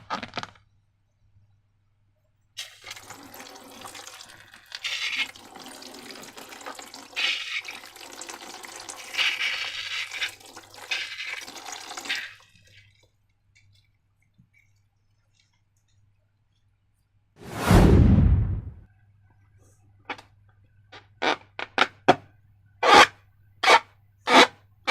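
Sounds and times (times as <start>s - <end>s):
liquid pouring and gushing: 2.6s - 15.5s.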